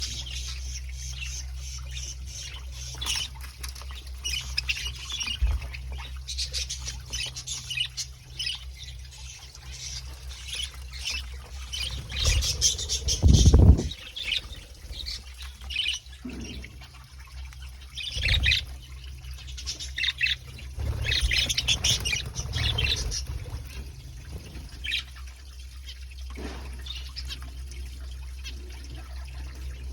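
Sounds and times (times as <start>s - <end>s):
steady low hum: 0.0s - 29.9s
budgerigars chirping: 4.0s - 16.8s, 18.0s - 23.6s
loud low rumble: 12.2s - 14.2s.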